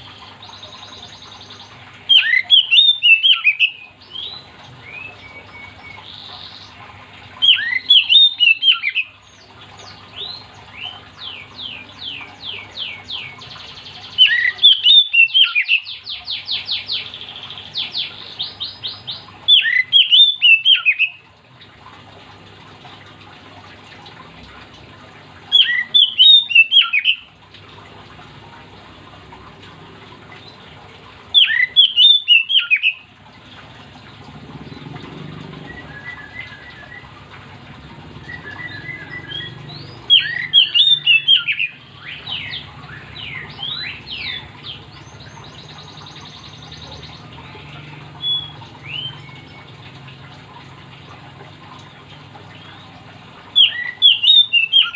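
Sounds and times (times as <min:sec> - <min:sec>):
faint steady hum: 0:00.0 - 0:54.9
bird singing whistled notes: 0:02.1 - 0:06.1, 0:07.4 - 0:09.1, 0:14.2 - 0:16.0, 0:19.5 - 0:21.2, 0:25.6 - 0:27.2, 0:31.4 - 0:33.0, 0:35.6 - 0:37.1, 0:38.2 - 0:47.2, 0:48.2 - 0:49.7, 0:53.6 - 0:54.9.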